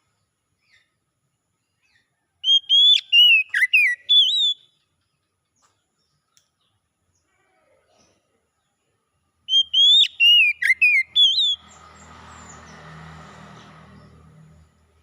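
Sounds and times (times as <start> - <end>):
bird whistled song: 2.4 - 4.9, 9.5 - 11.8.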